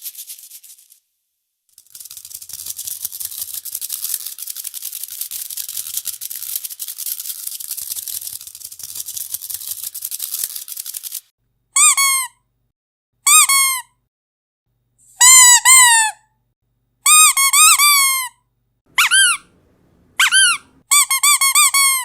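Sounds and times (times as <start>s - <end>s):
rattle shaken fast: 0.0s - 1.1s, 1.7s - 11.3s
short high squeak: 19.0s - 19.5s, 20.2s - 21.6s.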